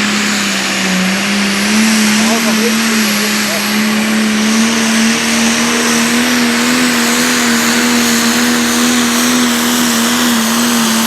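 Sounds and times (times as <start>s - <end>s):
racing tractor engine high revs: 0.0s - 11.0s.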